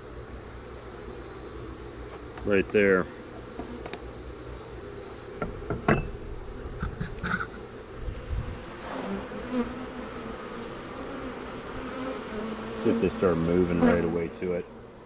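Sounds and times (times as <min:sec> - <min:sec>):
bees buzzing: 0:00.0 - 0:15.0
sharp knocks: 0:05.4 - 0:06.1.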